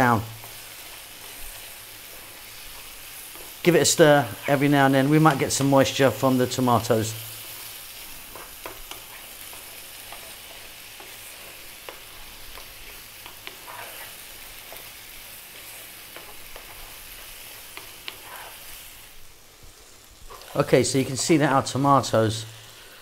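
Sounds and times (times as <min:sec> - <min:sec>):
vegetables sizzling in oil: 0:00.0 - 0:23.0
wooden spatula scraping pan: 0:07.0 - 0:19.0, 0:20.3 - 0:21.3.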